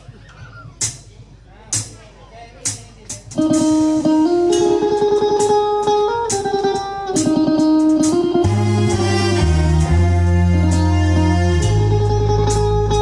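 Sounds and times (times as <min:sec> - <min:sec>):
bass: 0:00.0 - 0:13.0
plucked string instrument melody: 0:03.4 - 0:13.0.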